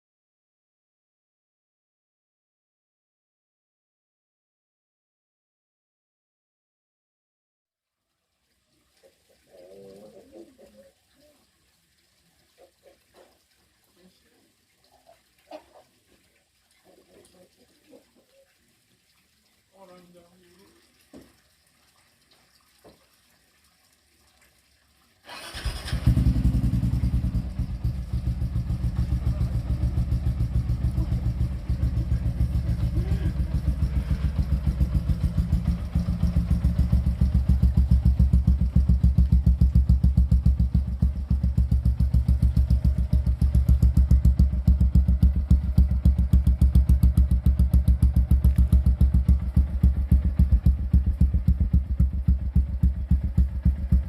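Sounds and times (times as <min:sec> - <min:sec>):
motorcycle engine idling: 0:25.4 - 0:54.0.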